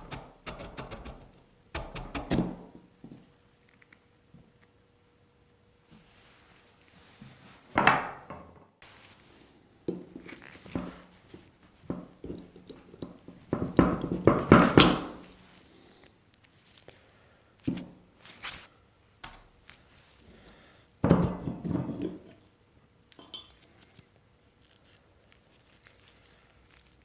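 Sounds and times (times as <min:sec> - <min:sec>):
metal fan parts clinking: 0:23.1 - 0:23.7.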